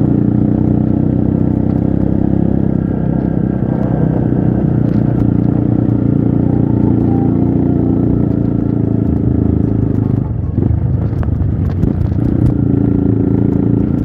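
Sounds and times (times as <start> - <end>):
motorcycle engine running: 0.0 - 14.0
sharp clicks and clatter: 8.2 - 14.0.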